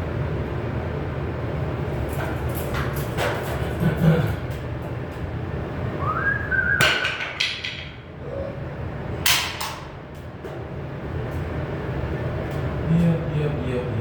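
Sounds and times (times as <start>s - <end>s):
rising whistle: 6.0s - 7.0s
sheet metal being struck: 6.8s - 8.0s.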